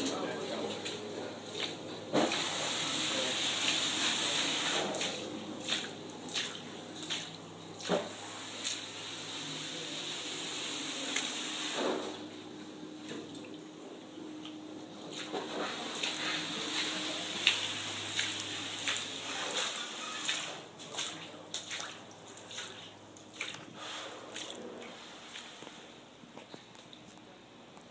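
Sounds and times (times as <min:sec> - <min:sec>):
water drips and splashes: 0:00.0 - 0:09.6, 0:11.0 - 0:12.2, 0:13.0 - 0:13.8, 0:14.4 - 0:25.8
water running: 0:00.0 - 0:26.0.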